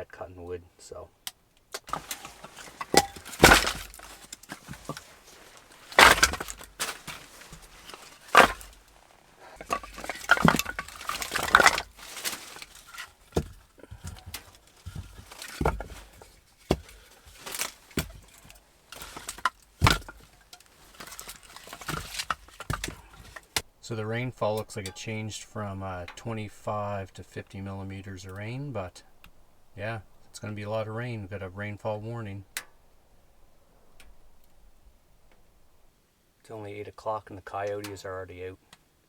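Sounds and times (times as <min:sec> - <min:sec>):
firewood cracking and snapping: 0:01.2 - 0:27.6.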